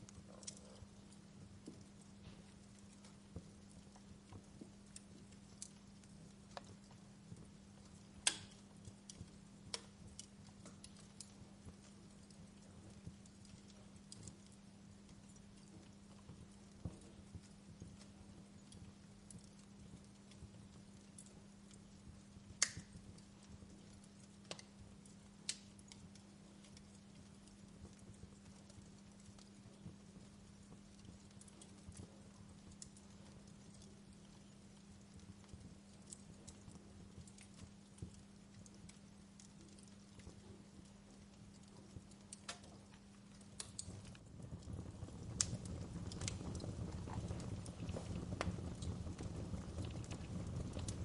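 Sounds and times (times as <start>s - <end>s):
faint steady low hum: 0.0s - 51.0s
wood fire crackling: 0.0s - 51.0s
sharp pops of fire: 8.1s - 14.4s, 21.2s - 24.7s, 25.4s - 26.0s, 42.3s - 51.0s.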